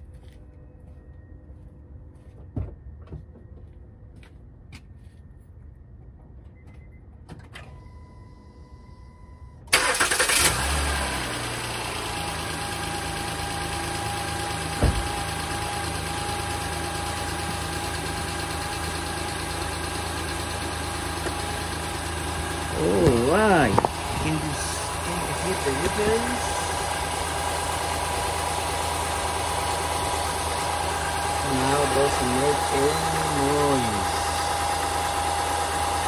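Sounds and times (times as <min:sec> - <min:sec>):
car engine starting and idling: 0:09.6 - 0:36.0.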